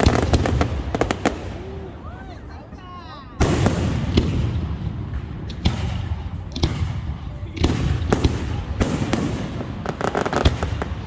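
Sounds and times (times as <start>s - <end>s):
fireworks bangs with rumbling echo: 0.0s - 2.4s, 3.4s - 11.0s.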